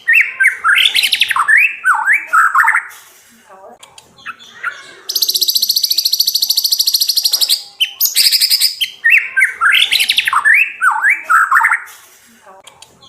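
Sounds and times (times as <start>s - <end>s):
bird rapid high trill: 4.5s - 11.9s.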